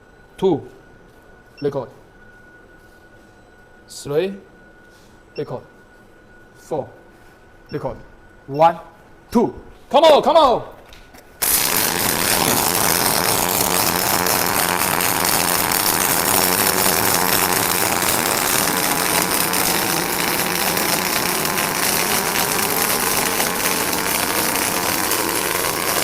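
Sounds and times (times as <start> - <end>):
robot tool rushing noise: 11.4 - 26.0.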